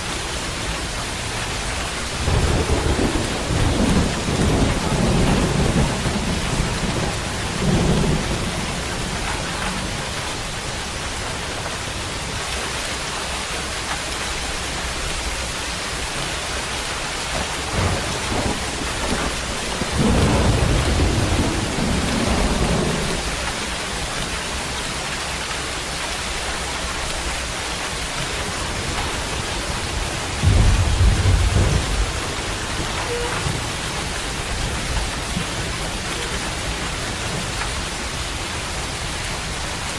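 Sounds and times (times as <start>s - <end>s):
steady rain falling: 0.0s - 39.9s
thunder rumbling: 1.8s - 10.9s, 17.3s - 24.1s, 28.6s - 38.4s.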